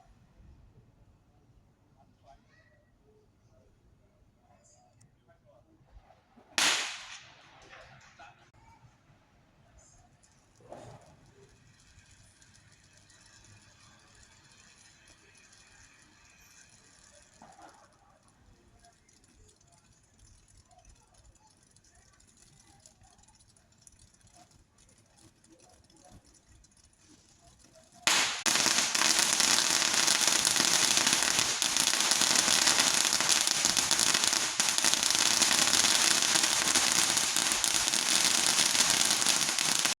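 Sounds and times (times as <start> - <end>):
fireworks crackling: 6.6 - 8.5, 25.2 - 40.0.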